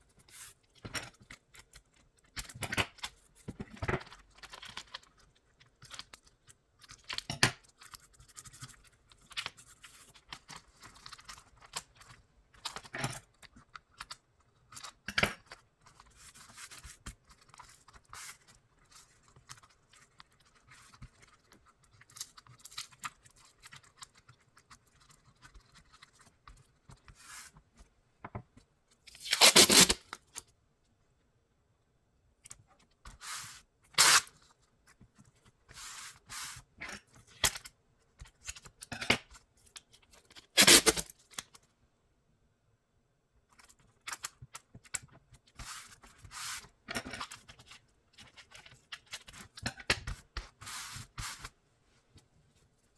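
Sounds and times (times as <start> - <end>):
adhesive tape pulled and torn: 29.1 - 30.2, 34.0 - 34.3, 40.6 - 41.1.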